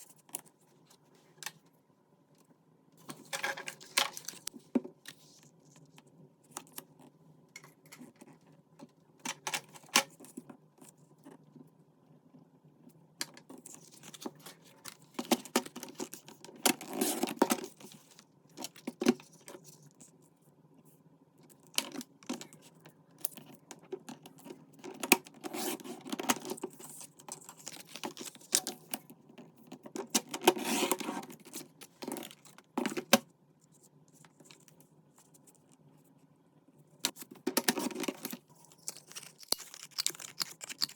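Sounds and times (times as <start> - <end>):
paper rustling: 37.2 - 40.9.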